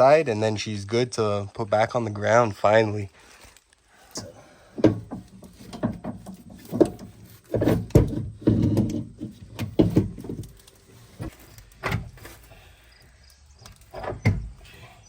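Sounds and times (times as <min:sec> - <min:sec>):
metal clunks and rattling: 0:04.2 - 0:12.5, 0:13.7 - 0:14.7
metal knocks: 0:04.8 - 0:10.4.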